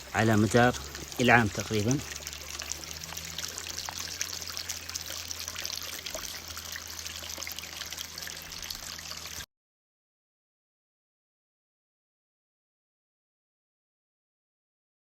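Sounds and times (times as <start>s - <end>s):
stream trickling over rocks: 0.0s - 9.5s.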